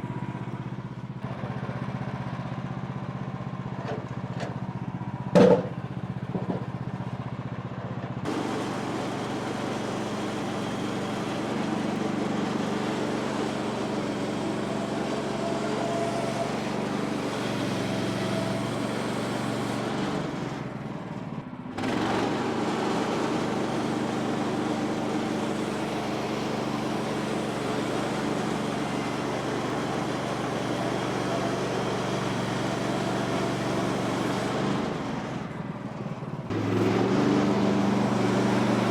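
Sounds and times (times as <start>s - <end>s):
bandsaw mill cutting log: 8.3s - 20.9s, 21.8s - 38.9s.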